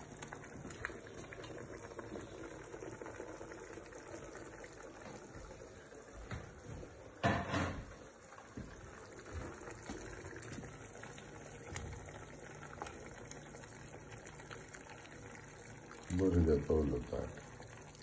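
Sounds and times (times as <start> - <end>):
soup simmering in a pot: 0.0 - 18.0
lid clattering on a pot: 7.2 - 7.8.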